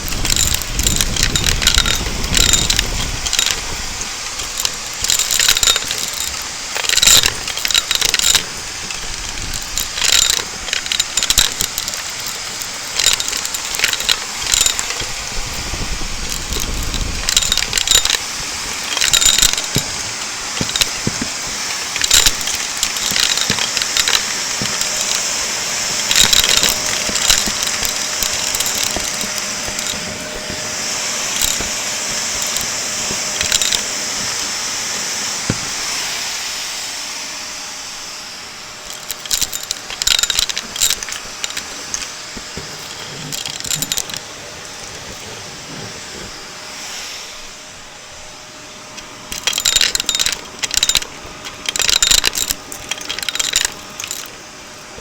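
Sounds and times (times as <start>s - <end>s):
debris crackling in vacuum: 0.0s - 37.6s
vacuum cleaner running: 0.0s - 55.0s.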